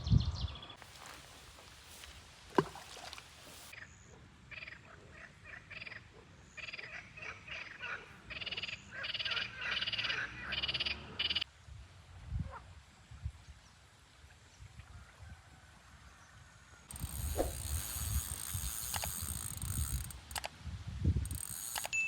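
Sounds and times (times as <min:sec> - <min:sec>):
sharp click: 0:17.2 - 0:20.5, 0:21.3 - 0:22.0.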